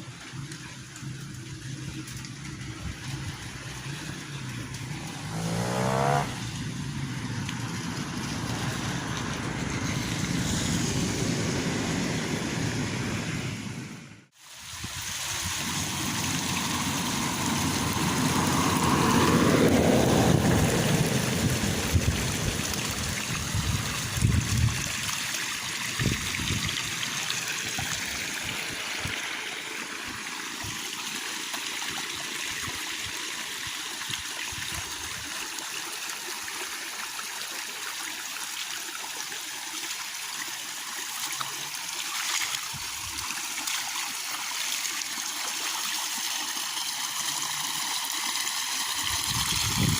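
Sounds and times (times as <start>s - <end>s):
heavy rain falling: 2.5s - 13.7s, 15.6s - 24.2s
wind gusts buffeting microphone: 17.8s - 24.9s, 49.1s - 49.9s.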